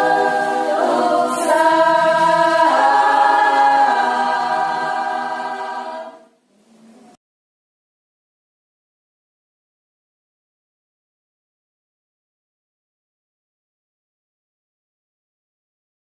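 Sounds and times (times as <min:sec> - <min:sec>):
women's choir singing: 0:00.0 - 0:06.4.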